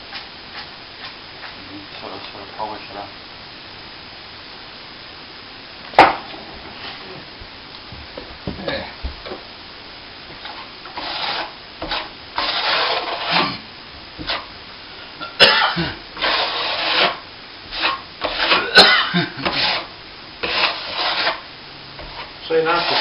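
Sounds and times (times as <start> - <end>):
hand tool scraping plaster: 10.5 - 13.6, 14.2 - 14.5, 16.2 - 18.8, 19.4 - 23.0.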